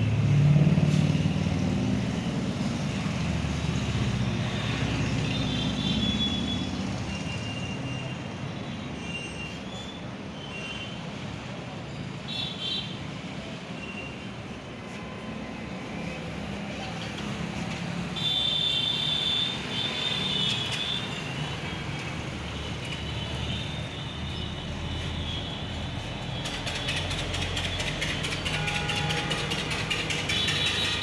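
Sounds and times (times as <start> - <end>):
vehicle engine running: 24.4 - 31.0.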